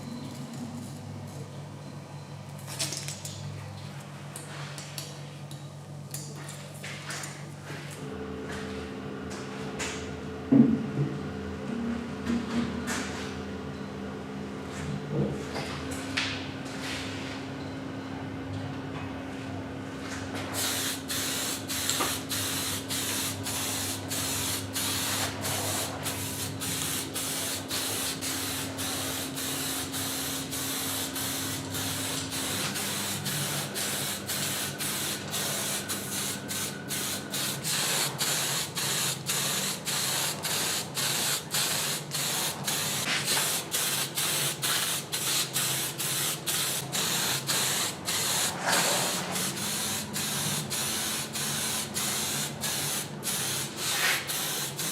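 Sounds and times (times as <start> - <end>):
steady machine hum: 0.0 - 2.6, 7.6 - 12.3, 17.4 - 54.9
compressed-air spray hissing: 20.6 - 54.9.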